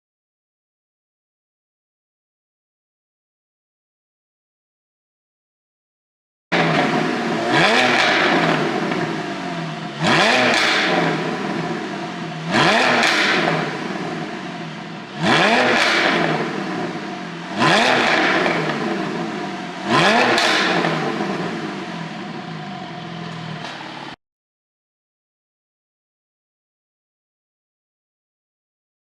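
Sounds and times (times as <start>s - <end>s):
car engine revving: 6.5s - 24.2s
exhaust pops and crackles: 6.6s - 12.0s, 12.6s - 14.4s, 15.2s - 17.0s, 19.9s - 21.6s.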